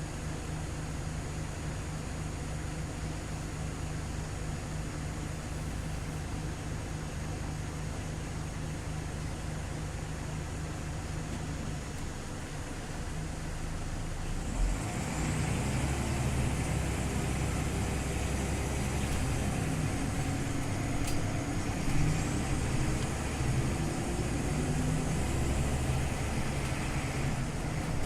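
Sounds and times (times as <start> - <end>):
bus engine droning: 0.0 - 28.0.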